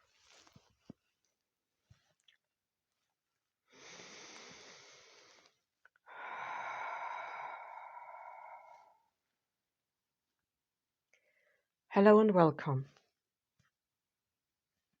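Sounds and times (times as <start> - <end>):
person breathing deeply: 3.7 - 9.1.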